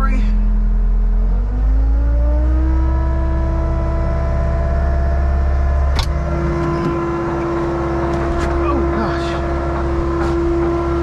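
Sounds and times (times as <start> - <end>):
hydraulic pump whine: 0.0 - 11.0
skid steer engine drone: 0.0 - 11.0.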